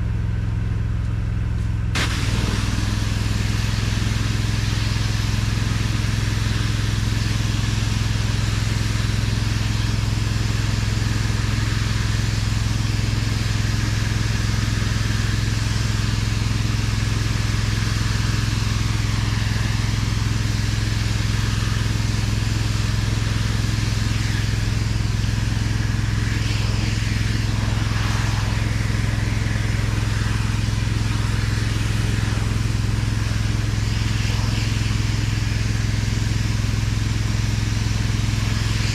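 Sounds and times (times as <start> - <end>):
pressure washer engine running: 0.0 - 38.9
water spray hissing: 2.0 - 38.9.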